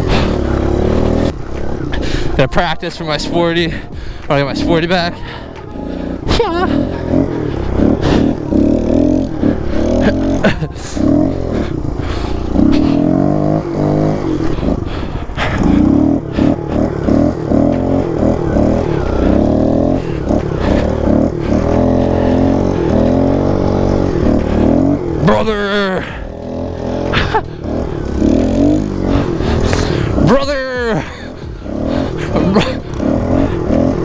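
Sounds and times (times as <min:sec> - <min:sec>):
pit bike engine revving: 0:00.0 - 0:34.0.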